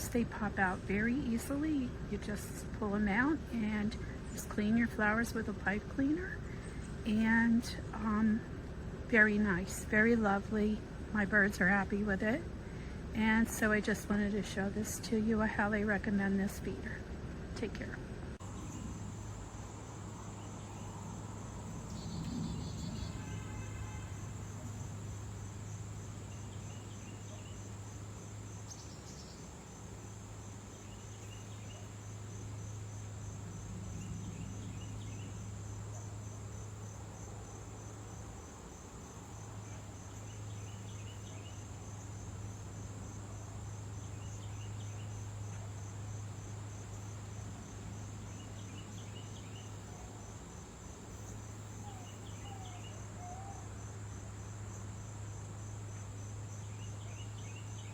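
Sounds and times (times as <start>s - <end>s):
low hum: 0.0s - 36.9s
insect chorus trilling: 18.4s - 57.9s.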